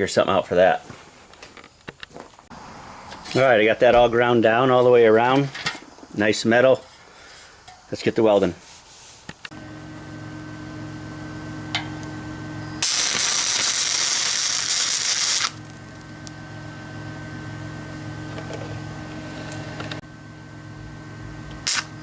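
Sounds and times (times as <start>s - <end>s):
electric welder humming: 9.4s - 22.0s
welding arc crackling: 12.8s - 16.4s, 21.5s - 22.0s.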